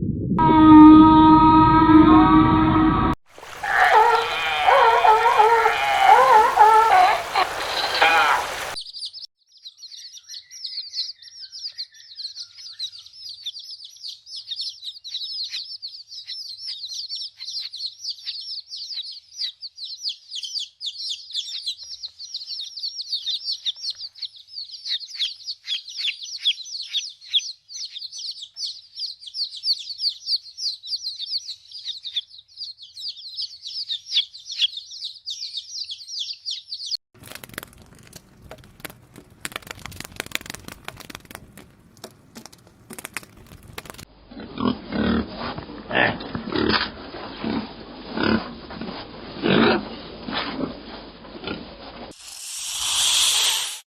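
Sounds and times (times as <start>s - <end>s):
crackling rustling noise: 3.3s - 8.8s, 37.2s - 44.1s, 46.9s - 52.2s
small birds chirping: 3.6s - 37.0s.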